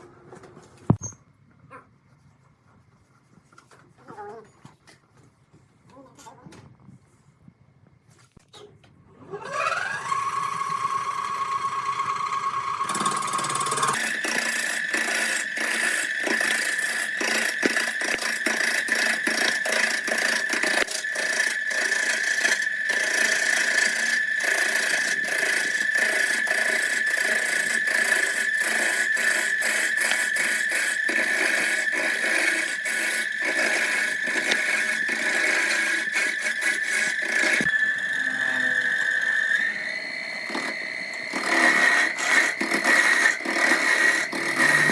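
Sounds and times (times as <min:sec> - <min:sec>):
power tool whining: 0:09.2 - 0:44.9.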